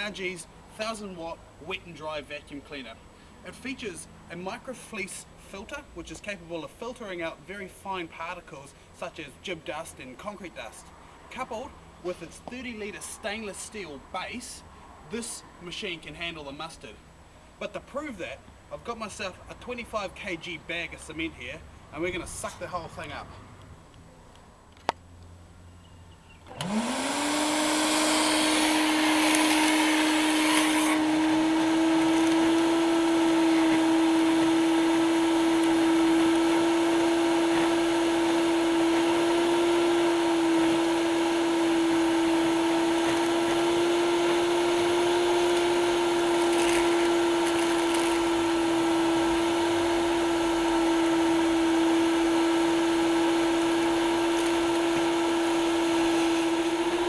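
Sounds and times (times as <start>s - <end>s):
vacuum cleaner motor whine: 26.5s - 57.0s.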